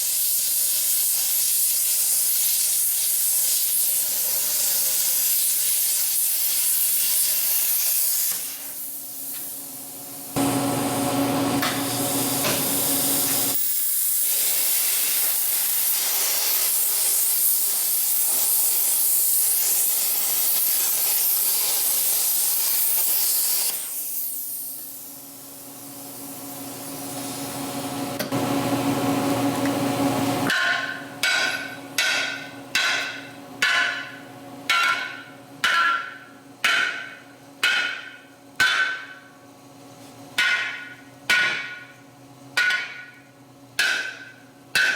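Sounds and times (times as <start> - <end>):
loud steady hiss: 0.0 - 10.6, 11.9 - 27.6.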